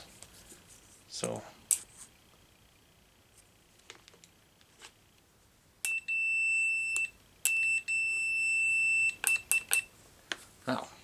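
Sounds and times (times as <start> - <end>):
multimeter continuity beeps: 5.8 - 9.9
probe clicks: 9.0 - 9.9.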